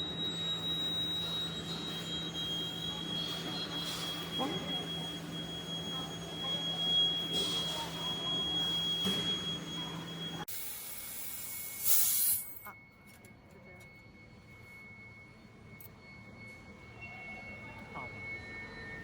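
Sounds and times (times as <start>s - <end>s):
laser welder whine and hum: 0.0s - 19.0s
laser welder hissing: 10.7s - 12.5s.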